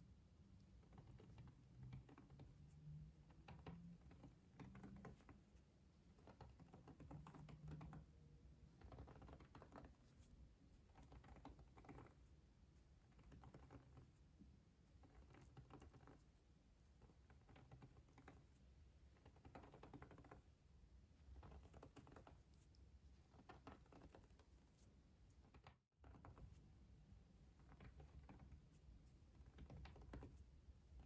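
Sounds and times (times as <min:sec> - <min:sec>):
soft clicking and tapping: 0:00.6 - 0:08.1, 0:17.0 - 0:20.5, 0:21.2 - 0:26.6, 0:27.5 - 0:30.5.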